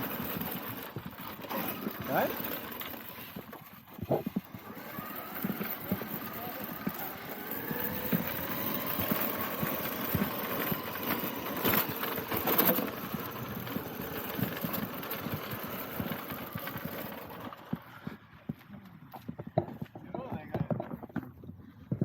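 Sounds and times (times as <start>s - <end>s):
electric motor whine: 0.0s - 18.2s
knocks and crunches of toy truck: 0.0s - 18.6s, 19.2s - 22.0s.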